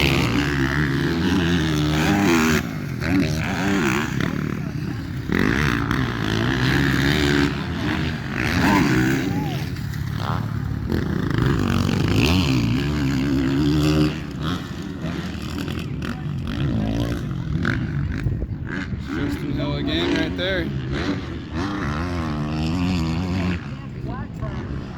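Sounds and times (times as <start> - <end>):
motocross bike engines revving: 0.0 - 24.9.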